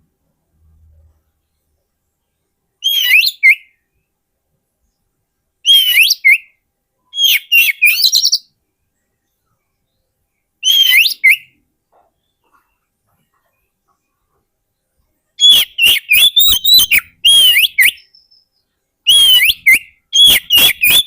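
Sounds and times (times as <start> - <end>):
bird singing whistled phrases: 2.8 - 3.8, 5.6 - 8.5, 10.6 - 11.6, 15.4 - 21.0.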